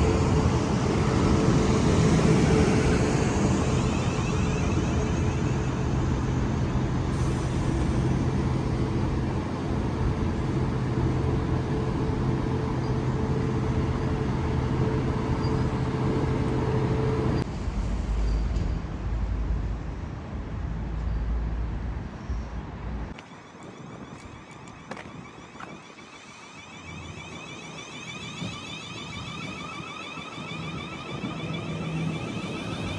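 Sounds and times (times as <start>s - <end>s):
train rumbling: 0.0s - 32.9s.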